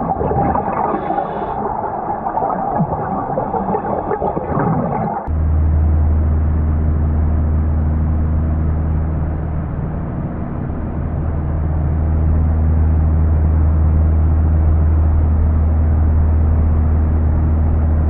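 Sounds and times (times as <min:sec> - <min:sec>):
engine running: 0:05.3 - 0:18.0.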